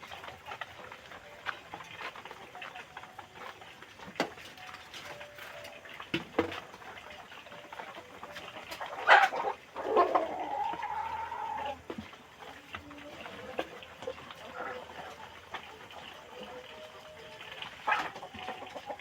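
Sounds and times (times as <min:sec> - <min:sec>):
chickens clicking: 0:00.0 - 0:19.0
chicken calls: 0:07.3 - 0:19.0.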